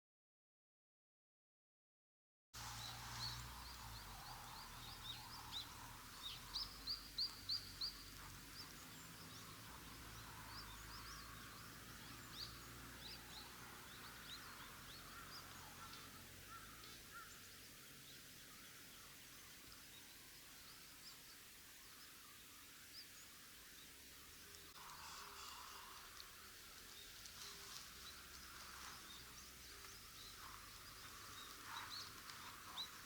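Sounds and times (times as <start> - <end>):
faint outdoor hiss: 2.6 - 33.0
birds chirping and calling: 24.8 - 33.0.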